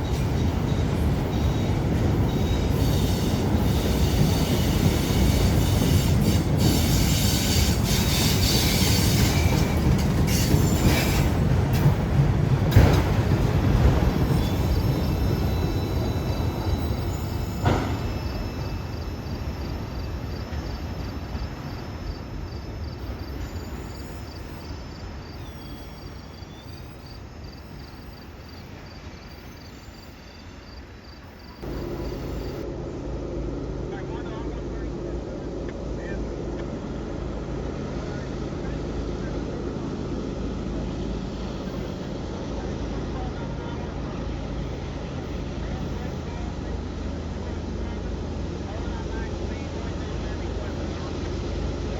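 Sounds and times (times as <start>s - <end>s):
wheel squeal: 0.0s - 11.9s, 13.8s - 28.3s
freight train wheels clicking: 0.0s - 24.2s.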